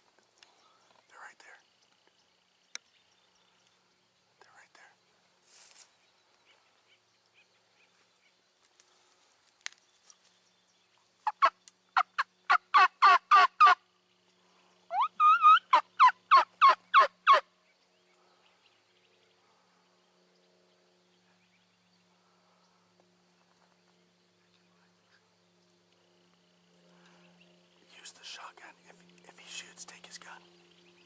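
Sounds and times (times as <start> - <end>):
turkey yelping: 11.2 - 13.8, 14.9 - 17.4.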